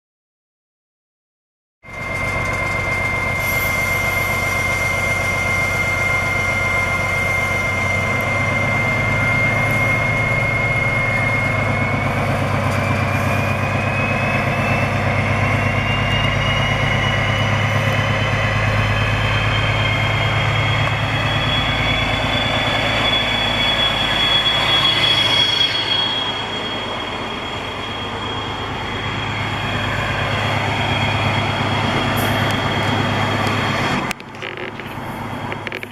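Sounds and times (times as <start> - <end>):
diesel locomotive engine drone: 1.8 - 35.9
turbocharger whistle: 1.9 - 34.0.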